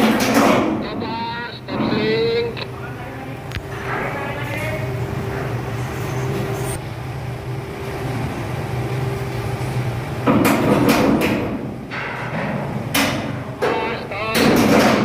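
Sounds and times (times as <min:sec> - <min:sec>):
machine humming: 0:00.0 - 0:12.0, 0:12.7 - 0:15.0
clattering knocks: 0:10.2 - 0:15.0.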